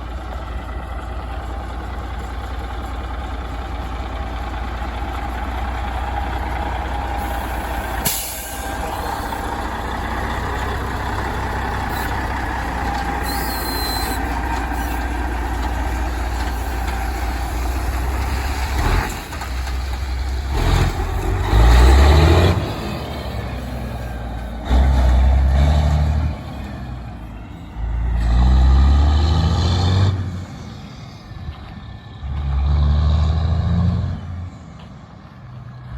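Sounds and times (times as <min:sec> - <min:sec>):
deep engine surges: 0:00.0 - 0:35.9
truck diesel engines running: 0:00.0 - 0:35.9
air brake hisses: 0:07.3 - 0:09.4.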